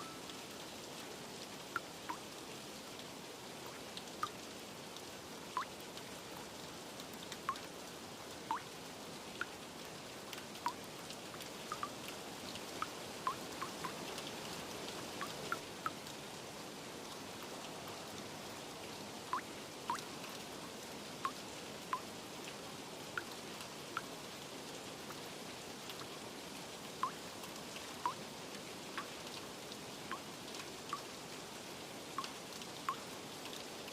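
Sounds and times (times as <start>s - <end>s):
water drops plinking: 0.0s - 0.4s, 11.7s - 12.0s, 19.4s - 20.1s
rain hiss: 0.0s - 33.9s.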